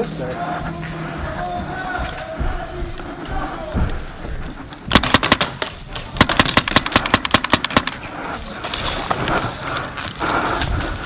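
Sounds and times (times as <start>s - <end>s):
airsoft rifle rapid clacks: 4.9s - 8.4s.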